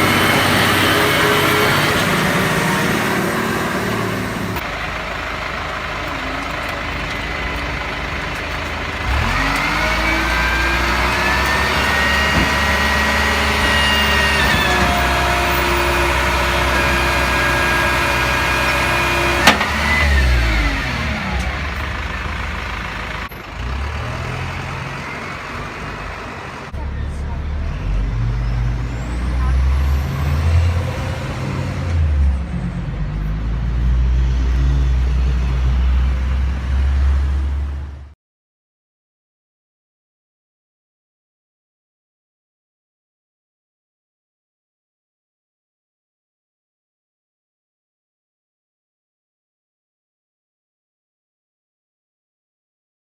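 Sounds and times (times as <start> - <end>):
diesel truck engine revving: 0.0 - 38.2.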